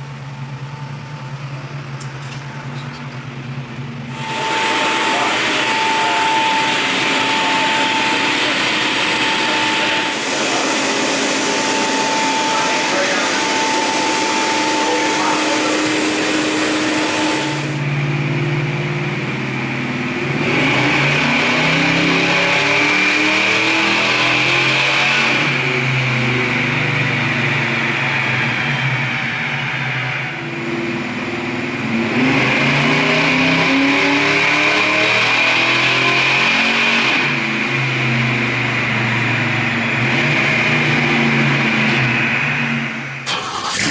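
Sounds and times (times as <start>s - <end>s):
car engine revving: 0.0s - 43.9s.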